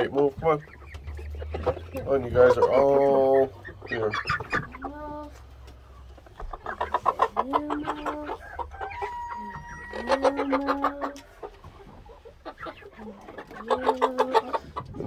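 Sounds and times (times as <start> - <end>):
chickens clucking: 0.0 - 15.0
young roosters crowing: 8.2 - 10.6.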